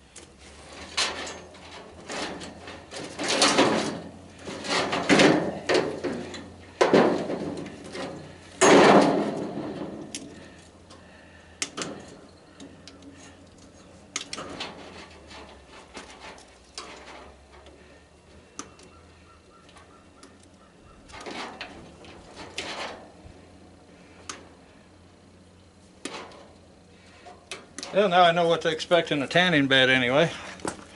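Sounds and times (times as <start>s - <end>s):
metal scrape: 0.0s - 10.8s, 13.1s - 18.0s, 21.1s - 24.2s
metal clank: 0.7s - 11.0s.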